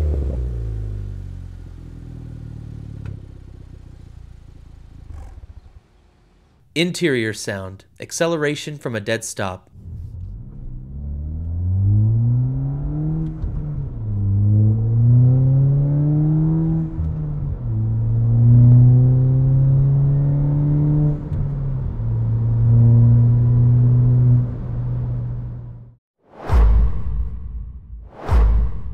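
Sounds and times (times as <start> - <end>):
car engine accelerating: 0.0 - 6.6, 9.7 - 26.0.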